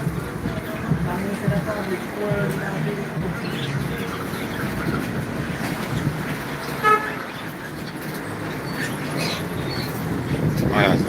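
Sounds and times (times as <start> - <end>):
road traffic noise: 0.0 - 11.0
vehicle horn toot: 6.8 - 7.3.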